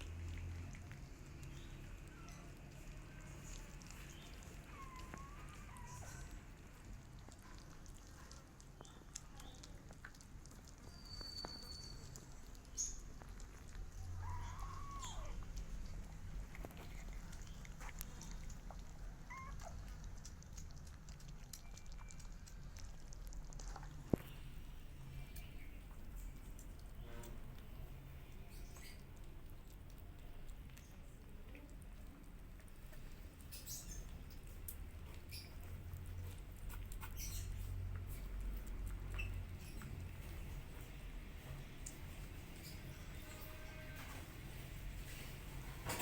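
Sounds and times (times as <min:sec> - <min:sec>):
cat meowing: 0:14.2 - 0:15.4, 0:19.2 - 0:19.8.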